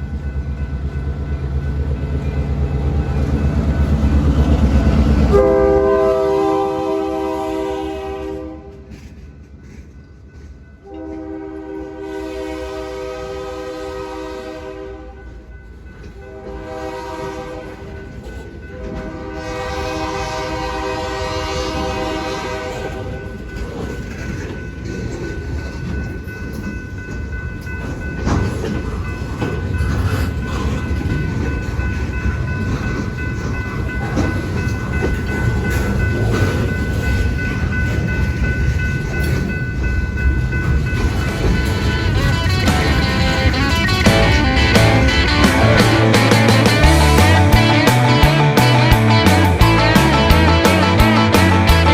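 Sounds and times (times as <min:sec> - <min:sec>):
train rumbling and clacking past: 0:00.0 - 0:51.9
train horn blasts: 0:05.3 - 0:08.9, 0:10.8 - 0:15.3, 0:16.2 - 0:23.2, 0:41.7 - 0:51.9.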